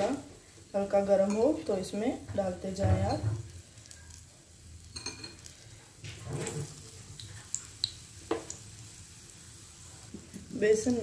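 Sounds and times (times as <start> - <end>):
food frying in oil: 0.0 - 11.0
spoon tapping glass bowl: 4.9 - 5.4.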